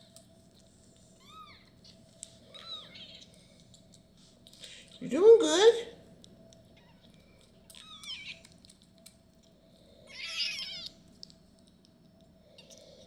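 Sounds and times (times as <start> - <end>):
kitten mewing: 7.7 - 8.5, 10.1 - 11.0.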